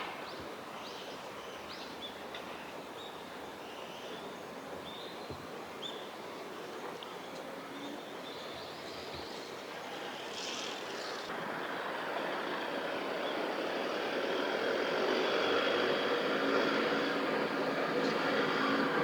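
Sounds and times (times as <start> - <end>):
vehicle engine approaching: 10.3 - 19.0.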